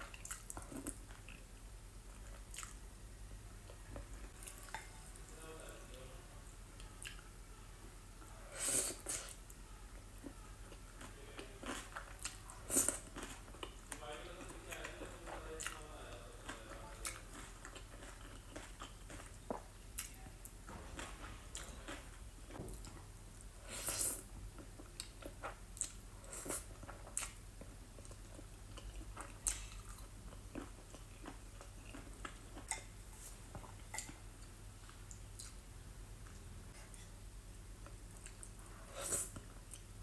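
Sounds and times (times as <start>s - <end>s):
person chewing and mouth smacks: 0.0s - 2.8s, 6.8s - 7.3s, 10.2s - 15.8s, 16.4s - 23.1s, 23.8s - 35.6s, 37.8s - 39.9s.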